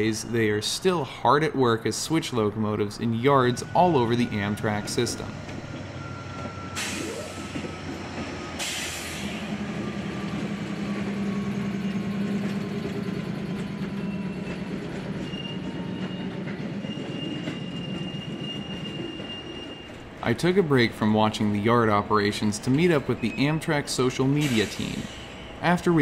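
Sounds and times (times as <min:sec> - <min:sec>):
locomotive engine drone: 0:00.0 - 0:26.0
train cars rolling on rails: 0:00.0 - 0:26.0
high wheel squeal: 0:03.0 - 0:20.6, 0:22.8 - 0:26.0.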